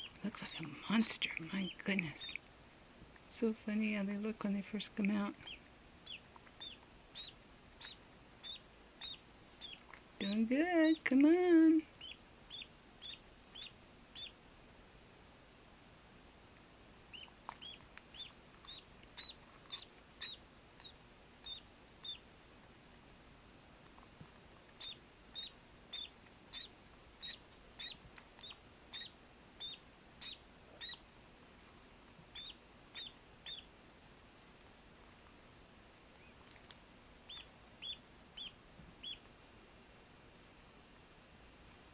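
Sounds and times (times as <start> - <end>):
duckling peeping: 0.0 - 2.4, 4.8 - 14.4, 17.0 - 22.3, 24.7 - 31.0, 32.2 - 33.7, 37.2 - 39.2.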